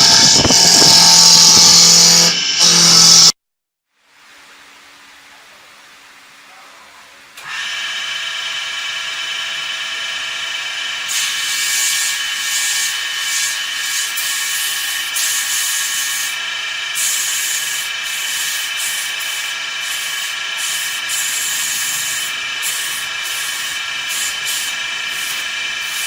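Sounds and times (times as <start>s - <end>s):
woodworking machine whining: 0.0s - 3.3s, 7.4s - 26.0s
hiss of wood being cut: 11.0s - 26.0s.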